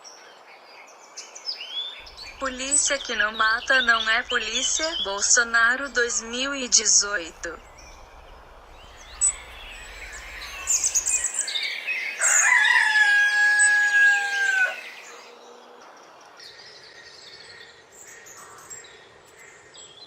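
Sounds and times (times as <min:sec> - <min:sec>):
high bird chirps: 0:01.9 - 0:15.3
rooster crowing: 0:12.0 - 0:15.3.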